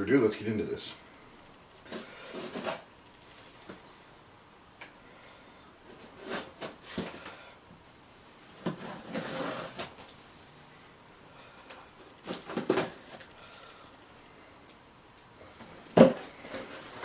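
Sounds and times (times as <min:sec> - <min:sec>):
ripping scrape: 0:01.9 - 0:02.9, 0:05.9 - 0:07.2, 0:08.6 - 0:10.0, 0:12.2 - 0:13.2
packaging knocks and rustles: 0:12.2 - 0:13.3, 0:15.6 - 0:17.0.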